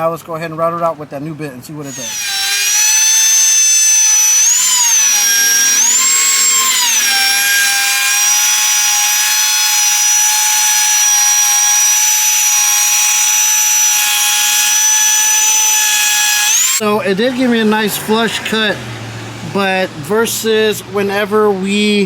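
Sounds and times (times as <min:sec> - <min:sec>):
router high whine: 0:01.9 - 0:16.8.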